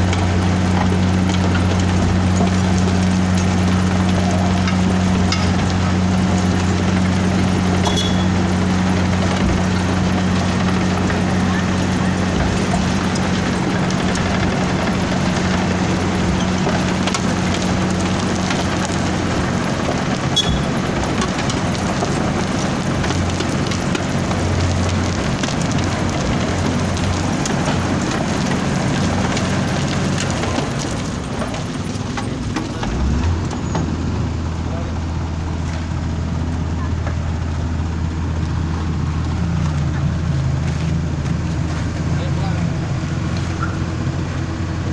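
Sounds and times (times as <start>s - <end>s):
drum grinding asphalt: 0.0s - 44.9s
milling machine engine: 0.0s - 44.9s.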